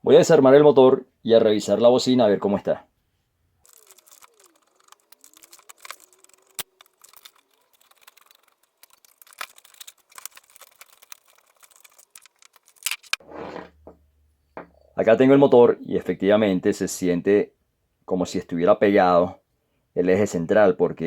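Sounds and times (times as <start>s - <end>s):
plastic and metal parts clicking: 3.7s - 13.2s.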